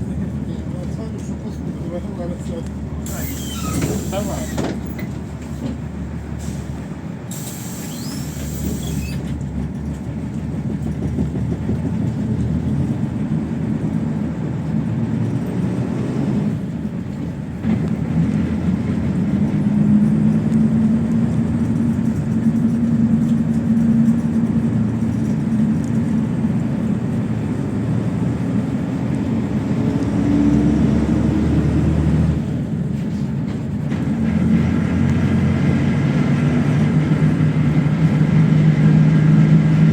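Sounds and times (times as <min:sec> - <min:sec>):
bus engine running: 0:00.0 - 0:39.9
road noise: 0:00.0 - 0:39.9.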